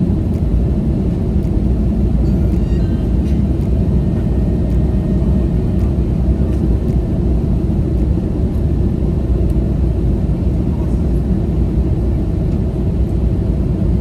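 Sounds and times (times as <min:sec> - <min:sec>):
airliner cabin engine rumble: 0:00.0 - 0:14.0.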